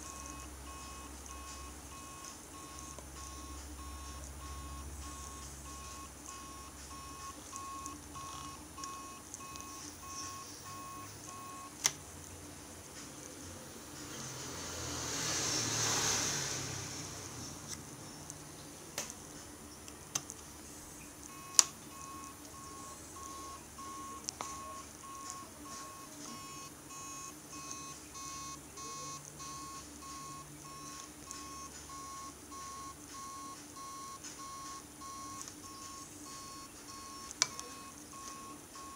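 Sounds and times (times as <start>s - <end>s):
repeating electronic beep: 0.0s - 11.7s, 21.3s - 38.9s.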